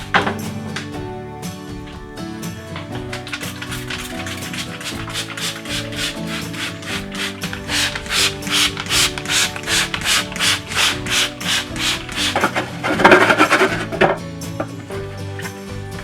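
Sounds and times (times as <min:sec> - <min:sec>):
sponge scrubbing a refrigerator shelf: 0:02.8 - 0:14.2.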